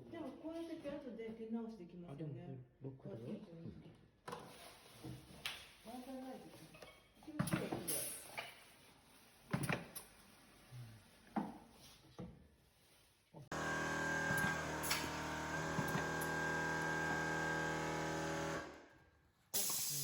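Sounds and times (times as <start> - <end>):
filling machine humming: 13.5 - 18.8.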